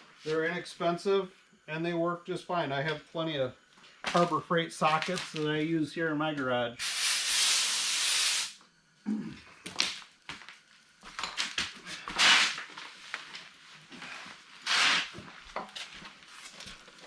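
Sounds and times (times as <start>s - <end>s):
noisy bursts: 0.3s - 8.6s.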